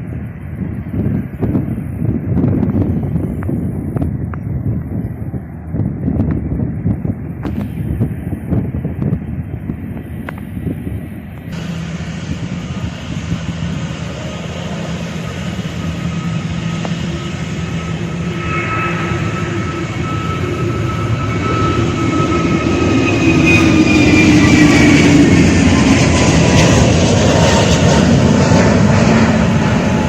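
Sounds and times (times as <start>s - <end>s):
jet engines rumbling: 0.0s - 30.0s
jet engine whining tones: 10.9s - 30.0s.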